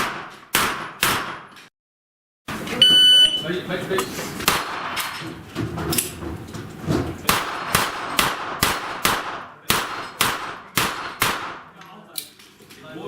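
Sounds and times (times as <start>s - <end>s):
gunshots hitting steel plates: 0.0s - 1.6s, 4.4s - 5.2s, 7.2s - 11.8s.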